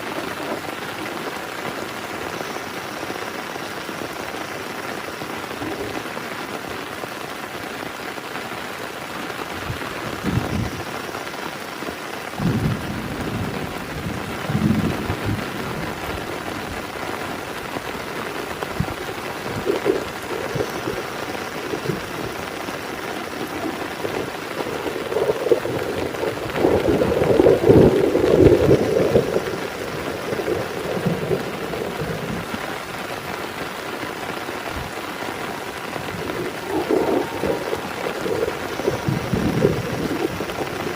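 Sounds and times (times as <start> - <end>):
heavy rain falling: 0.0 - 40.9
thunder rumbling: 9.6 - 11.0, 12.4 - 40.9.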